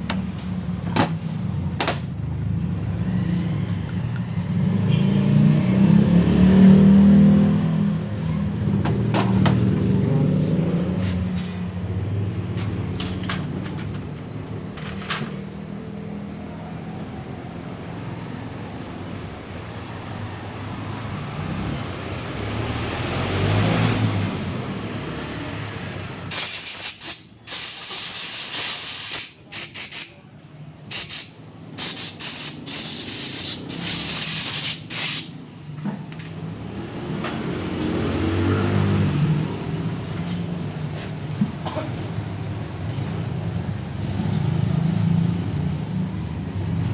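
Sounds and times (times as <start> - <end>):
sharp hissing air bursts: 26.3 - 30.2, 30.9 - 35.4.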